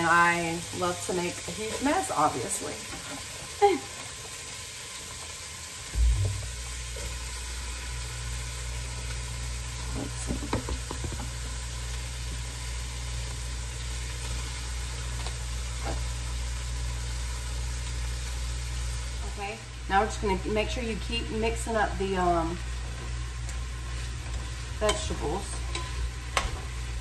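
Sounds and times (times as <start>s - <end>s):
vegetables sizzling in a pot: 0.0s - 27.0s
steady low hum: 5.9s - 7.2s
thump: 6.0s - 6.6s.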